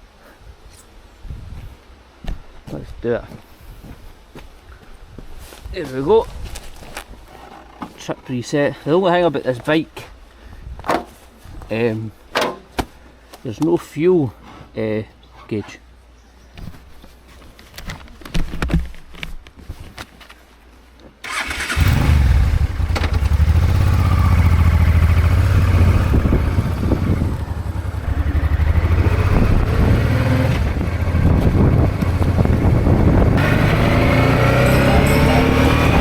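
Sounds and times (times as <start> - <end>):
motorcycle engine rumbling: 21.2 - 36.0.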